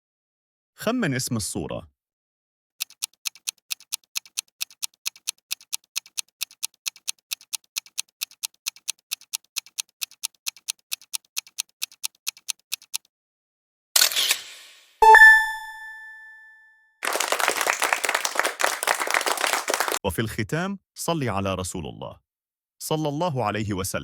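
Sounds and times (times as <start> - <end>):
clock ticking: 2.8 - 13.1.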